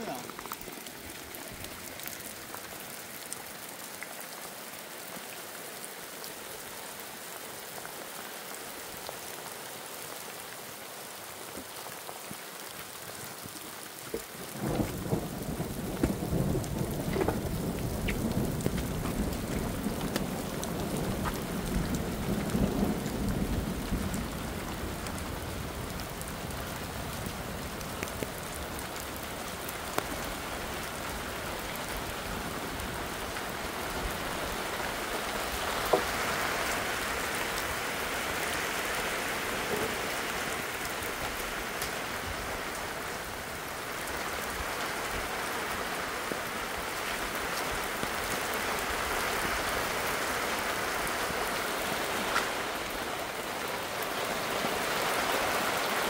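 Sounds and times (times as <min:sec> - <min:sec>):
rain falling: 0:00.0 - 0:56.0
thunder rumbling: 0:14.4 - 0:34.6.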